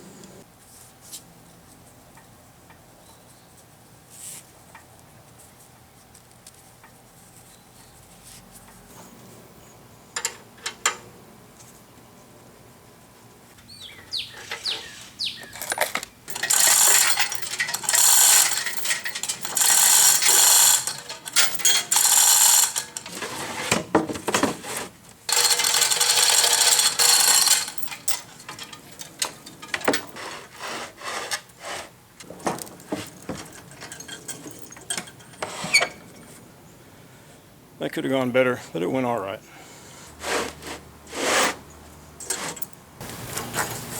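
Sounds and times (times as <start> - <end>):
metal scraping and grinding: 16.3 - 23.9.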